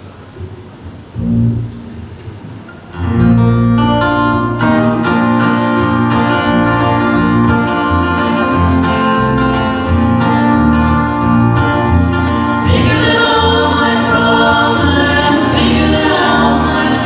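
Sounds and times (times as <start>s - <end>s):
acoustic guitar strumming: 1.2s - 17.0s.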